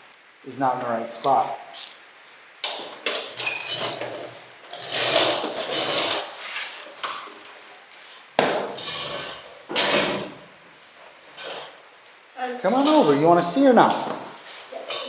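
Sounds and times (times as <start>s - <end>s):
tools scraping and clunking: 2.6s - 10.5s, 11.1s - 11.8s, 12.7s - 15.0s.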